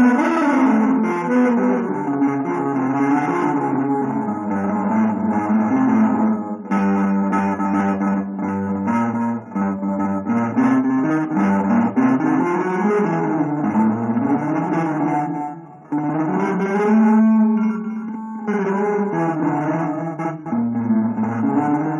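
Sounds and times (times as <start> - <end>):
plucked guitar notes: 0.0 - 21.9.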